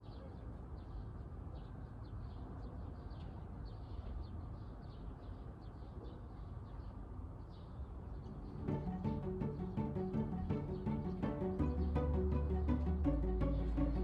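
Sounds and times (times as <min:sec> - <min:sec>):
small birds chirping: 0:00.0 - 0:14.0
low background rumble: 0:08.7 - 0:14.0.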